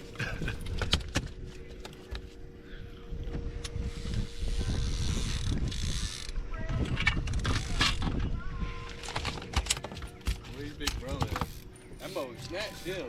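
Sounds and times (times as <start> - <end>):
boat motor humming: 0.0 - 6.6, 7.6 - 13.0
wind buffeting microphone: 2.5 - 11.6.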